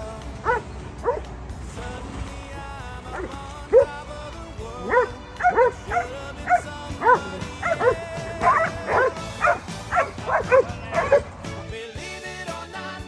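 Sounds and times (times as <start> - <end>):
background music: 0.0 - 13.0
dog barking: 0.4 - 1.3, 3.1 - 3.9, 4.8 - 11.4.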